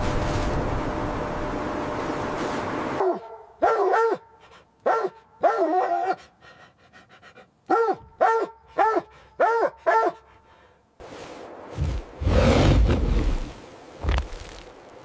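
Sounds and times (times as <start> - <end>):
dog barking: 3.0 - 6.3, 7.7 - 10.3.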